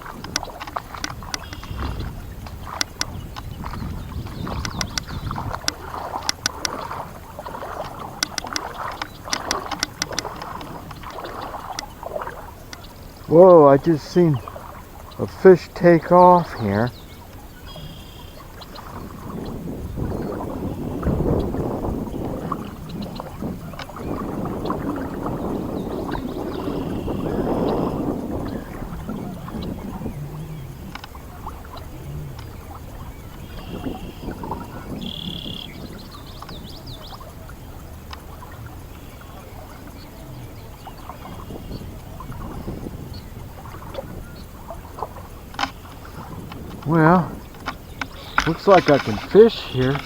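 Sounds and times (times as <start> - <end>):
boots sloshing through water: 0.0 - 50.0
sharp little clicks: 0.2 - 3.5, 4.4 - 7.0, 7.8 - 11.1, 45.5 - 50.0.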